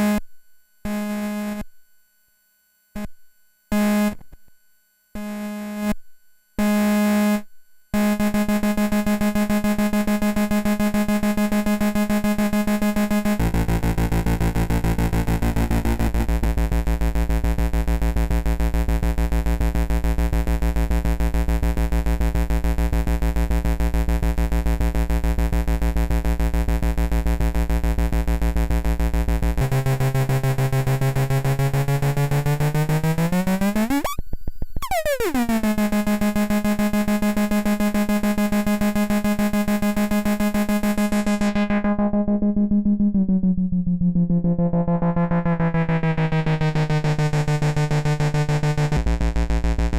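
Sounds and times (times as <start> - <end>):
buzzy synth tone with flutter: 29.6 - 49.0.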